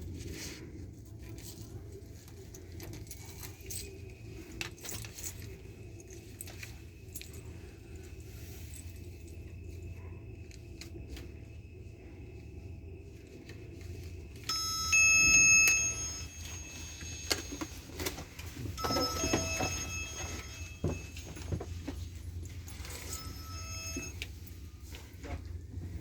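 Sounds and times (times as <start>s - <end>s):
electrical hum: 0.0s - 26.0s
faint high whine: 0.1s - 26.0s
metallic jingles: 1.5s - 10.0s, 14.0s - 25.2s.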